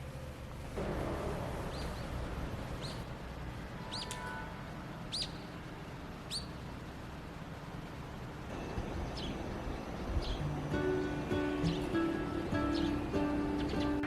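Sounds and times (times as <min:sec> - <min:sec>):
low background rumble: 0:00.0 - 0:14.0
bird chirping: 0:01.5 - 0:03.2, 0:03.8 - 0:06.7, 0:08.5 - 0:14.0.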